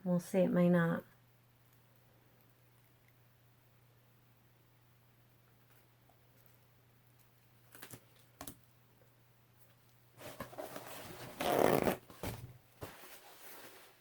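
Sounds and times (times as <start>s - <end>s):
rustling handling noise: 9.6s - 14.0s.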